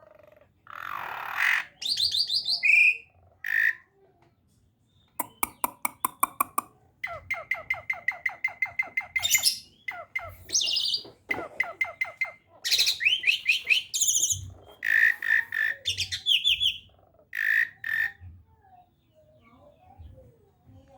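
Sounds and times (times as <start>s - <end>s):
starling singing: 5.2s - 6.7s.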